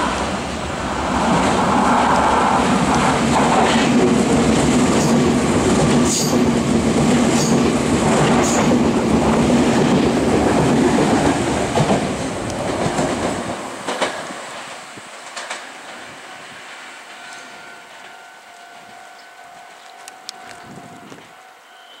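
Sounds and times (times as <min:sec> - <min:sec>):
train wheels rushing on rail: 0:00.0 - 0:19.0
sharp rail clacks: 0:02.8 - 0:16.0.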